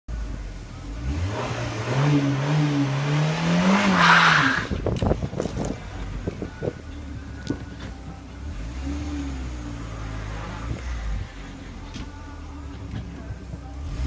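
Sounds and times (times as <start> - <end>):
car engine revving: 0.2 - 4.8, 7.5 - 12.0, 12.6 - 14.0.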